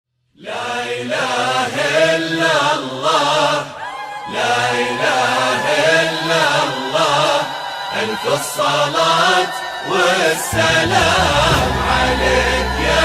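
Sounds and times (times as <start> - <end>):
person chanting: 4.4 - 13.0
steady low drone: 10.5 - 13.0.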